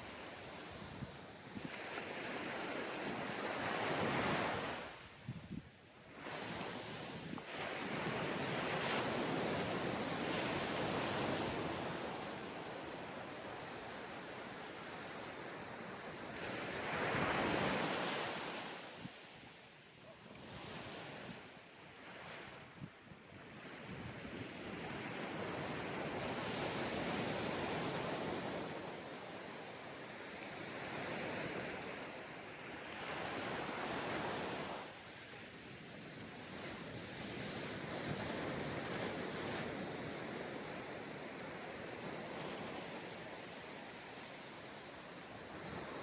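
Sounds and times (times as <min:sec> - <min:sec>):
ocean waves breaking on beach: 0:00.0 - 0:05.4, 0:06.0 - 0:46.0
wind on microphone: 0:00.4 - 0:12.0.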